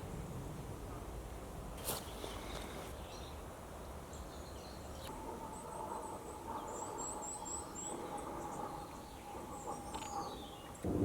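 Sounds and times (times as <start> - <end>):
small bird singing: 2.0 - 10.9.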